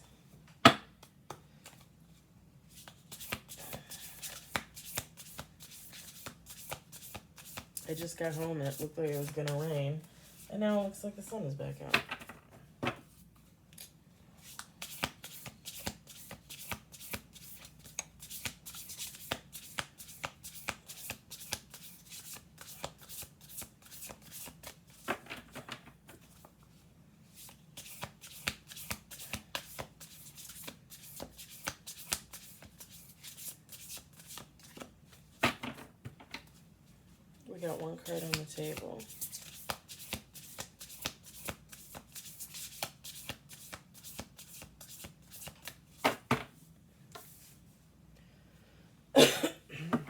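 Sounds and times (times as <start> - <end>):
cards being shuffled by hand: 2.7 - 10.5, 13.0 - 26.6, 27.4 - 35.8, 37.8 - 46.3.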